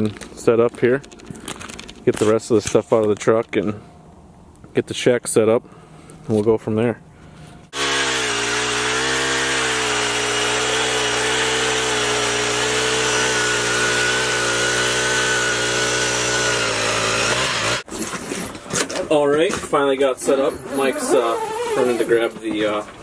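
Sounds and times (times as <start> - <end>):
power ice auger drilling: 7.7 - 17.9.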